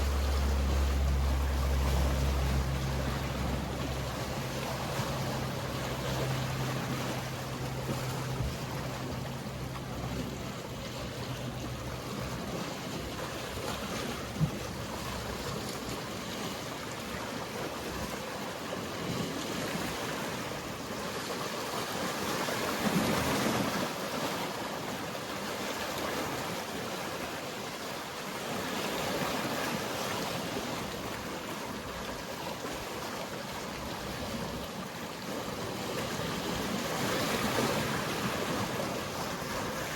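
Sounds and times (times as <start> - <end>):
boat engine humming: 0.0 - 27.7, 28.3 - 39.9
sea waves washing: 0.0 - 39.9.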